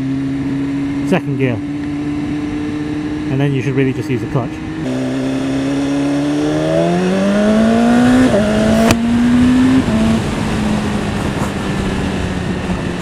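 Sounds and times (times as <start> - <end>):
motorcycle engine accelerating: 0.0 - 13.0
rushing wind noise: 4.5 - 13.0.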